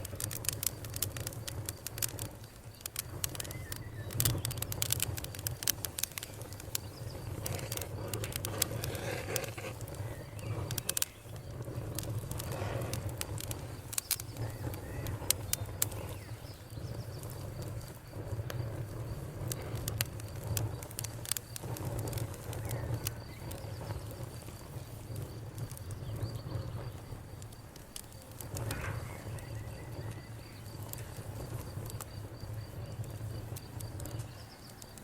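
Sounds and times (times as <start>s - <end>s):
campfire crackling and popping: 0.0s - 35.0s
faint birds calling: 1.9s - 17.4s.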